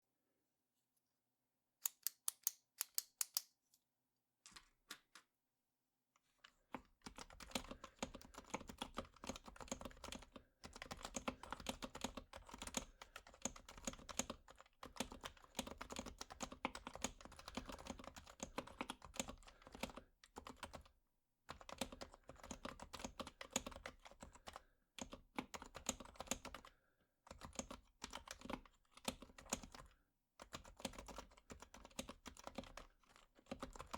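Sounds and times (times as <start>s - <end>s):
ballpoint pen clicking: 1.8s - 3.5s
soft keyboard typing: 6.7s - 20.9s, 21.5s - 33.9s.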